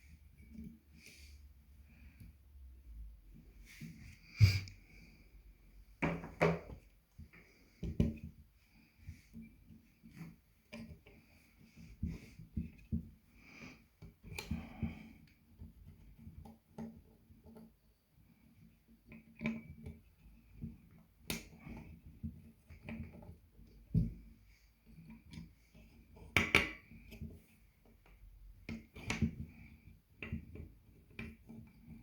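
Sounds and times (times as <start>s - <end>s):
small clicks and light knocks: 6.0s - 13.3s, 13.9s - 32.0s.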